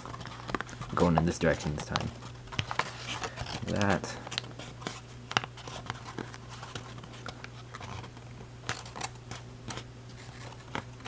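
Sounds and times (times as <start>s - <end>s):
paper crinkling and crackling: 0.0s - 11.0s
steady low hum: 0.0s - 11.0s.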